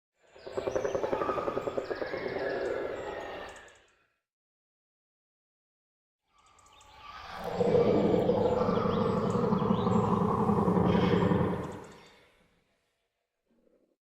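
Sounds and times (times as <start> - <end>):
creature roar: 7.2 - 12.0.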